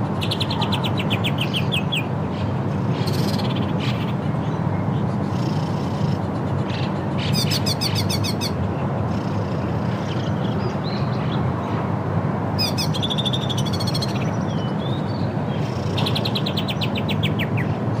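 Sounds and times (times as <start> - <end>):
birds chirping: 12.6 - 17.8.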